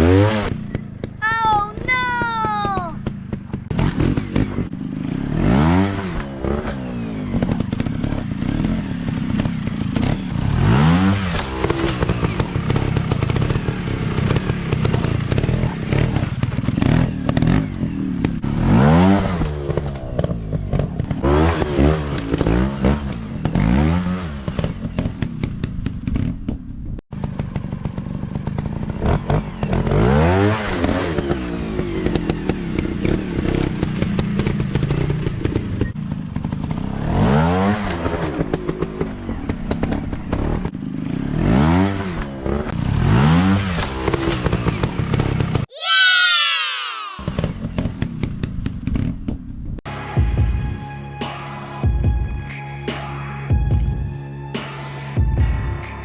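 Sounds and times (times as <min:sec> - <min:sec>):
dirt bike engine revving: 0:39.7 - 0:45.5.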